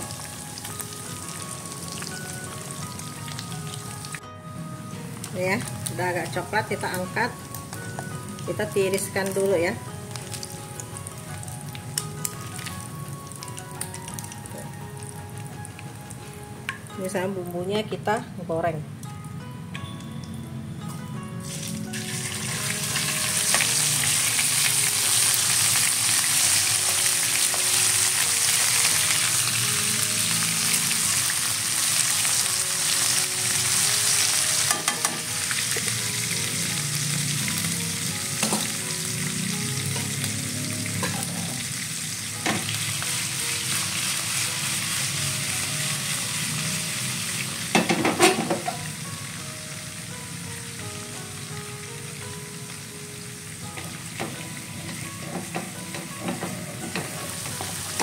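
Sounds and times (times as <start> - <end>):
paste sizzling in hot oil: 21.4 - 47.7.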